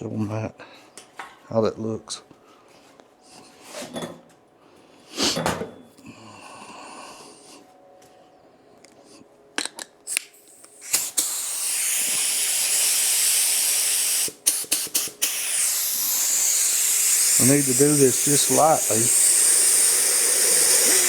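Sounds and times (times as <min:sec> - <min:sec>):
spray gun puffs: 0:10.5 - 0:21.0
spray gun hissing: 0:10.7 - 0:21.0.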